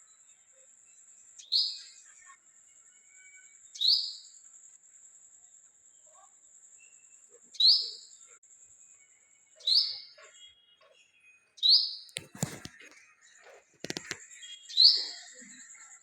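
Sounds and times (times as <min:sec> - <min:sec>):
clicks: 0:12.2 - 0:13.0, 0:13.8 - 0:14.2.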